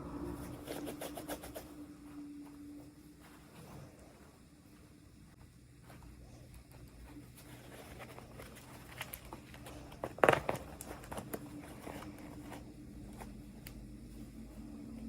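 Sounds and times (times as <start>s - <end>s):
faint steady hum: 0.0s - 15.0s
plastic packaging clicks and rustles: 7.4s - 12.6s
plastic crackling snap: 8.0s - 12.3s.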